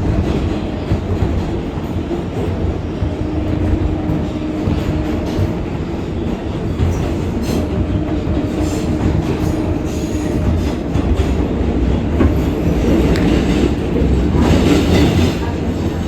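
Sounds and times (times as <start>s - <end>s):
subway wheels rumbling on rail: 0.0s - 16.0s.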